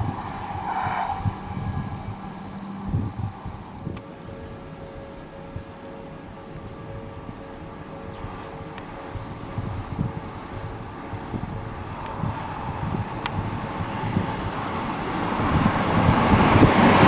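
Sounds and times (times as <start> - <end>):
wind on microphone: 0.0 - 5.8, 6.4 - 17.0
insects buzzing: 0.0 - 17.0
faint two-note tone: 0.2 - 13.3.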